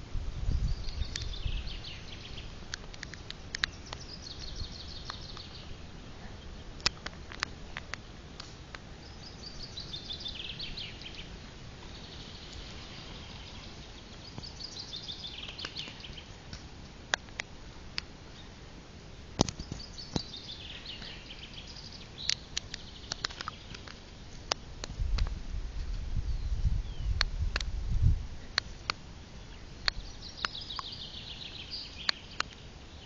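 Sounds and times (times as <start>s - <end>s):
steady low rumble: 0.0s - 31.2s
songbird singing: 0.0s - 33.0s
sharp clicks: 0.8s - 1.4s, 2.7s - 5.5s, 22.2s - 25.3s.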